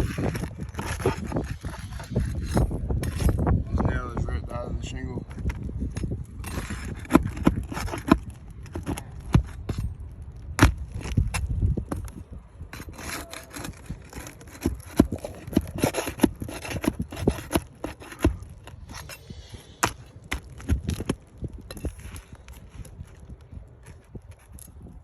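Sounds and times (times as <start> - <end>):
hand tools scraping roof shingles: 0.0 - 3.6, 5.3 - 25.0.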